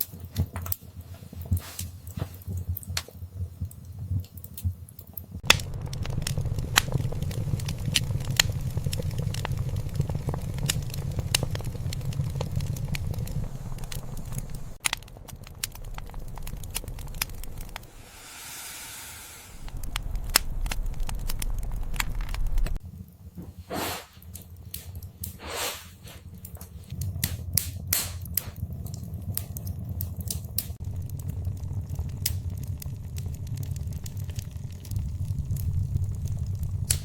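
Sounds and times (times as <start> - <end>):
wood fire crackling and popping: 0.0 - 18.5, 19.5 - 37.0
low fire rumble: 0.0 - 37.0
brief hiss: 17.9 - 19.8, 25.4 - 26.0
short loud whooshes: 17.9 - 19.9.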